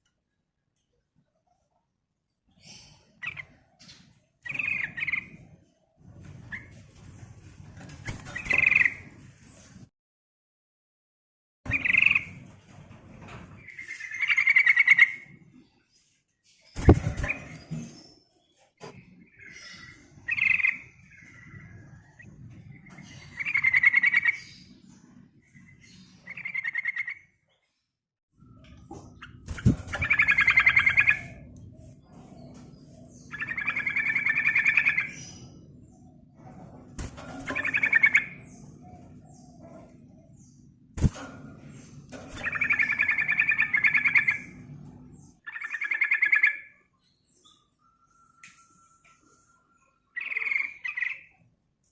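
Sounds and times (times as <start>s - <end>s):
bird calling and trilling: 2.5s - 5.7s, 8.1s - 9.0s, 11.7s - 12.4s, 13.6s - 15.4s, 19.3s - 24.7s, 25.5s - 27.5s, 28.4s - 36.2s, 37.0s - 40.7s, 41.7s - 51.4s
bird rolling chatter: 29.0s - 31.6s, 36.8s - 39.6s, 41.1s - 44.6s.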